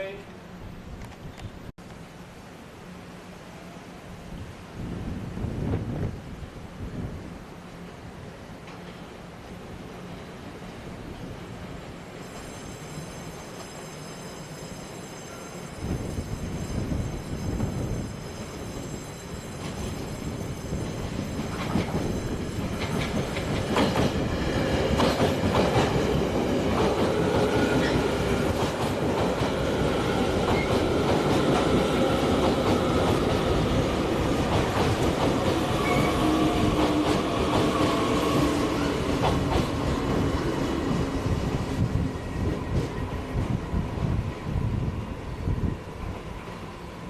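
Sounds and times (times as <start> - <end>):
train wheels clattering on rails: 12.2 - 43.1.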